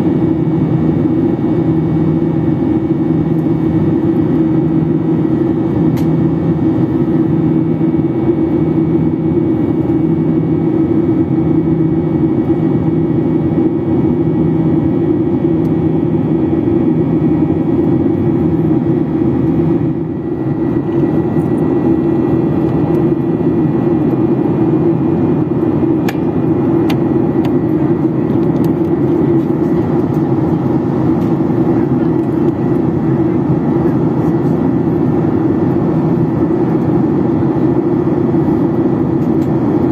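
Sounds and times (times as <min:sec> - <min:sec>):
airplane cabin engine roar: 0:00.0 - 0:39.9.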